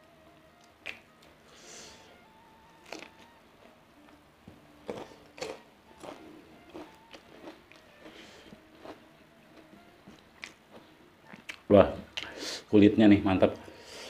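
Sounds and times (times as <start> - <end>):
chewing with wet mouth smacks: 11.2 - 11.6.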